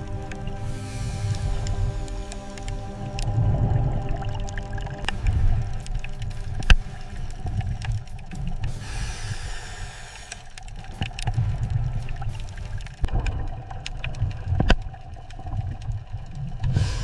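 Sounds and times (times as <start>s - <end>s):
low mechanical rumble: 0.0s - 10.7s.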